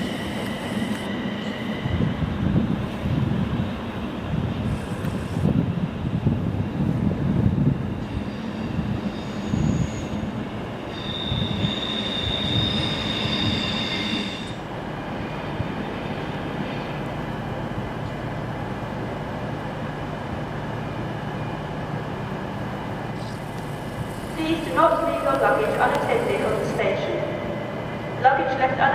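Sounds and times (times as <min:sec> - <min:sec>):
high wheel squeal: 0:08.3 - 0:10.3, 0:10.9 - 0:14.6.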